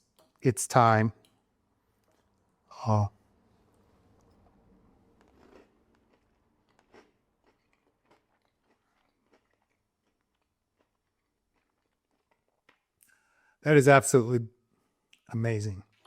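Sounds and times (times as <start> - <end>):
faint chewing crunches: 3.6 - 13.4.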